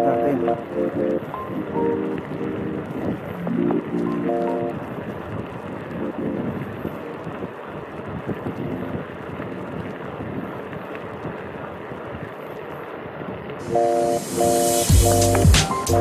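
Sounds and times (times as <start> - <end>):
wind buffeting microphone: 1.2 - 12.4.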